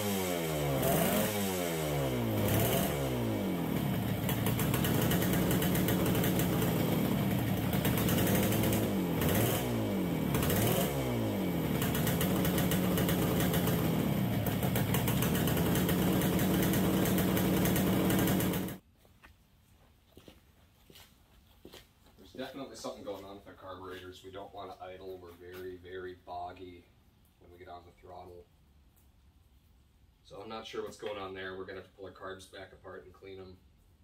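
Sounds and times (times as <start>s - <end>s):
two-stroke engine revving: 0.0s - 18.8s.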